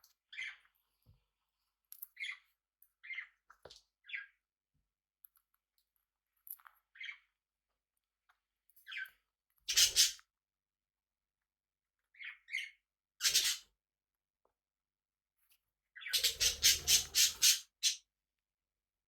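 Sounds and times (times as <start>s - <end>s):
parrots chirping: 12.2s - 13.6s, 16.0s - 18.0s.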